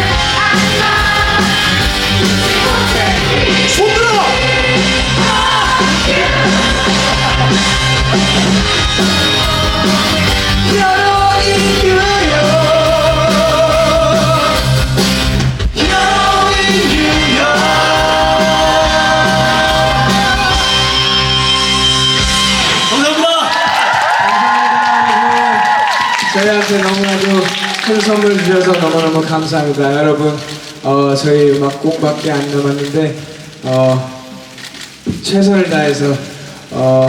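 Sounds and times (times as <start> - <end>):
voices singing held notes: 0.0 - 14.8, 15.7 - 22.9
rock band playing: 0.0 - 23.8.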